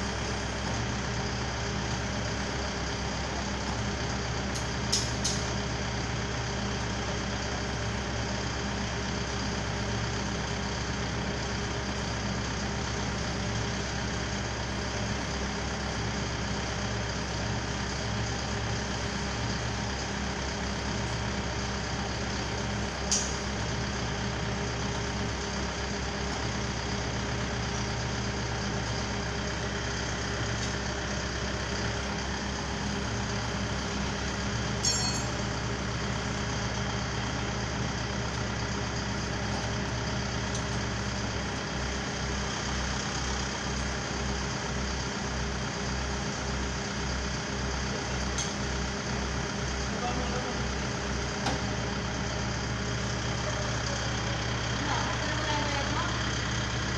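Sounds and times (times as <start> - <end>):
truck engine idling: 0.0 - 56.9.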